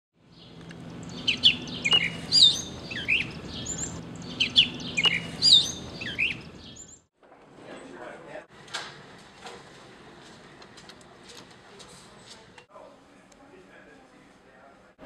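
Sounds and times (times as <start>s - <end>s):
birdsong chirps and whistles: 0.3s - 7.1s.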